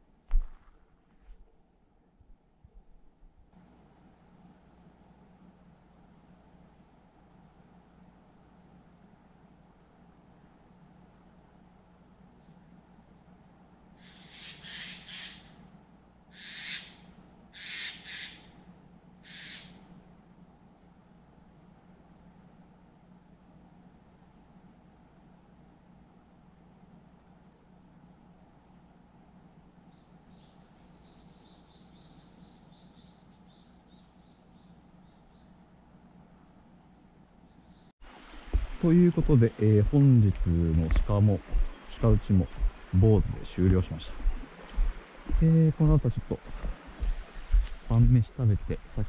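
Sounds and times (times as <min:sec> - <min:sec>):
low background hum: 0:00.0 - 0:49.0
bird screechy calls: 0:14.0 - 0:15.6, 0:16.3 - 0:18.6, 0:19.2 - 0:19.8
songbird high chirps: 0:29.9 - 0:35.6, 0:36.9 - 0:37.9.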